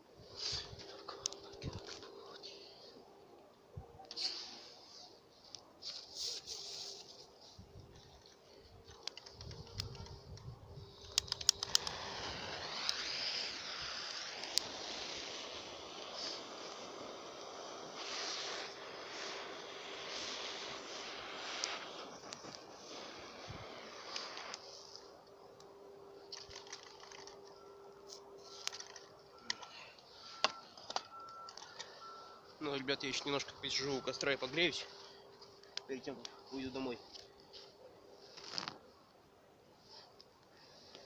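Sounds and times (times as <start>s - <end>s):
campfire crackling: 0.0s - 41.0s
campfire crackling and popping: 7.8s - 25.7s, 26.3s - 27.6s
faint steady whistle: 9.6s - 36.5s
rushing hiss: 11.0s - 25.1s.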